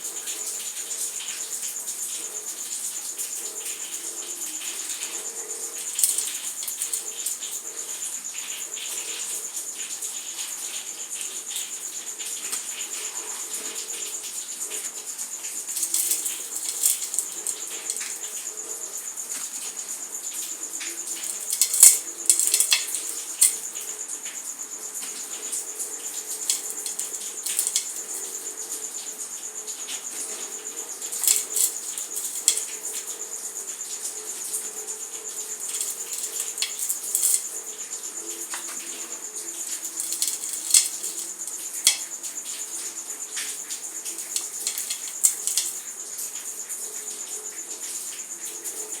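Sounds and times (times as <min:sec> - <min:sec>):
dry material crumbling: 0:05.9 - 0:07.3, 0:15.8 - 0:18.2, 0:21.1 - 0:23.7, 0:26.4 - 0:28.3, 0:31.2 - 0:32.7, 0:35.7 - 0:37.5, 0:39.9 - 0:42.1, 0:44.2 - 0:45.8.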